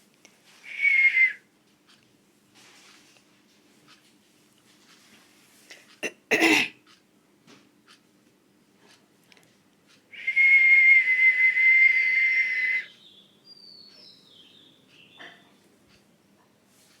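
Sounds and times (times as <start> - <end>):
loud breathy whistle: 0.6 - 1.4, 10.2 - 12.9
faint bird chirps: 12.8 - 15.7.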